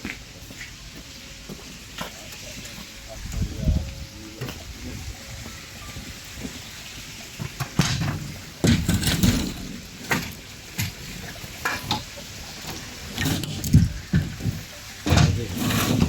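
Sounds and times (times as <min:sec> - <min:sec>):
boards and tools clattering: 0:07.6 - 0:11.0, 0:13.2 - 0:16.0.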